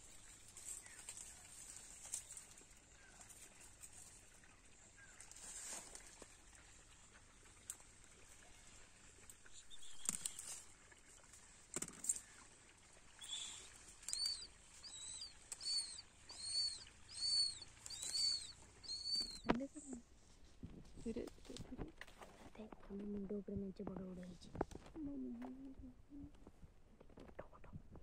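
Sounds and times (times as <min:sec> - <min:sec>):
bird chirping: 0:09.4 - 0:10.8, 0:13.1 - 0:20.0.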